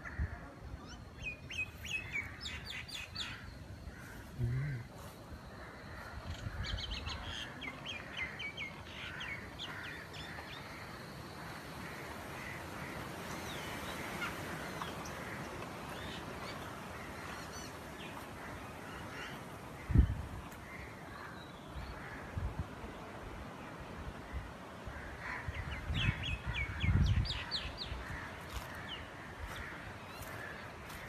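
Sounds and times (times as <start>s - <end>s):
birds chirping and calling: 0.0s - 22.3s, 25.0s - 31.0s
steady background noise: 0.0s - 31.0s.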